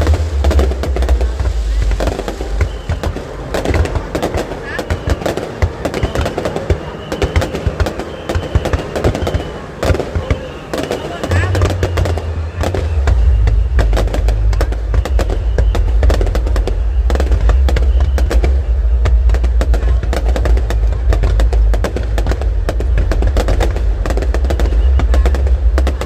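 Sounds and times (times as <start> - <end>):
deep steady rumble: 0.0 - 4.6, 11.2 - 26.0
fireworks bangs and crackling: 0.0 - 26.0.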